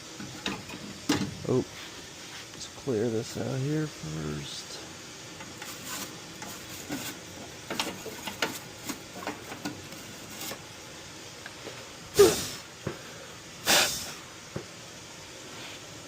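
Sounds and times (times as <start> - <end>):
short loud hissing burst: 12.1 - 14.3.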